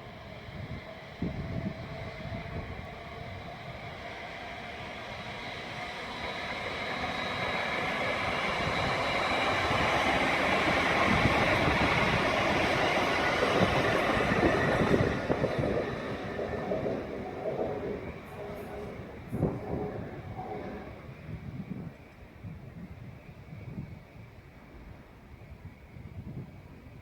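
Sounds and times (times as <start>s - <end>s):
train passing: 0.0s - 22.1s
train clatter: 6.9s - 21.4s.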